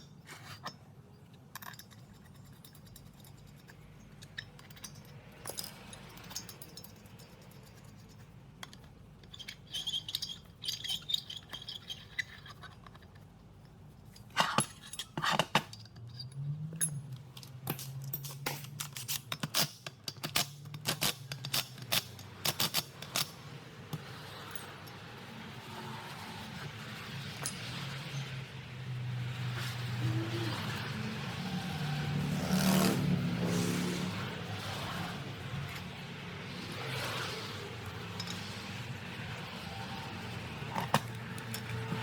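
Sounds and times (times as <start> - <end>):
metal tools clinking: 0.0 - 25.2, 27.2 - 28.3, 37.8 - 42.0.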